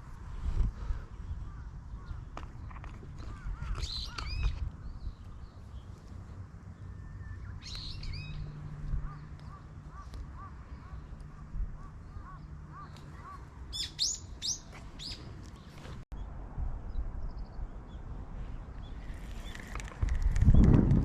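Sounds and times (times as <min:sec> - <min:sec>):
small birds chirping: 0:00.9 - 0:16.3.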